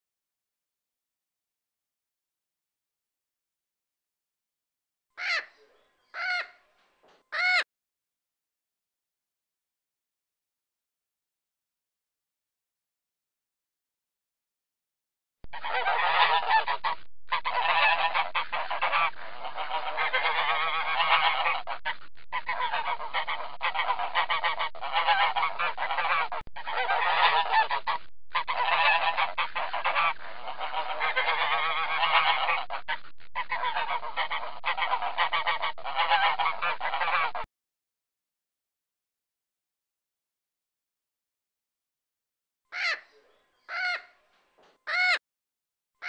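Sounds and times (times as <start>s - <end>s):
flamingos honking and gabbling: 15.5s - 37.5s, 42.8s - 44.2s.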